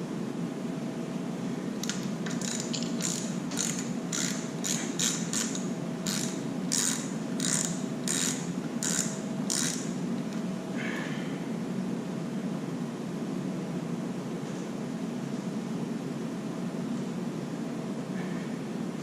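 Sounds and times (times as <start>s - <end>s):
socket ratchet clicking: 1.8s - 10.0s.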